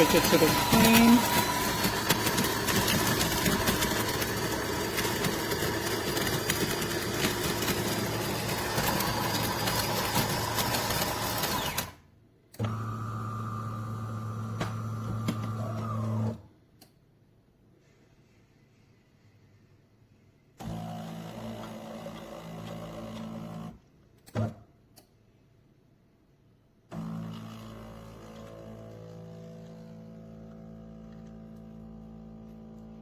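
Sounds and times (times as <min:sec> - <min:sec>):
machine motor hum: 0:00.0 - 0:11.9
coffee grinder grinding beans: 0:00.0 - 0:12.0.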